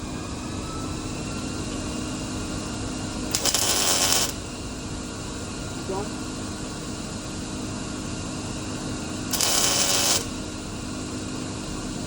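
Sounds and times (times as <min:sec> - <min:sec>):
steady background hum: 0:00.0 - 0:12.0
welding arc crackling: 0:03.3 - 0:04.4, 0:09.3 - 0:10.4.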